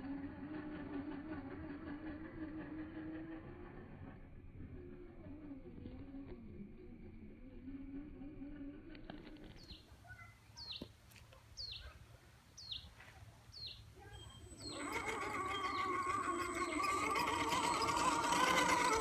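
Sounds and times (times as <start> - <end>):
bird chirping: 11.6 - 11.9, 12.6 - 12.9, 13.5 - 19.0
electric motor whining: 14.1 - 19.0.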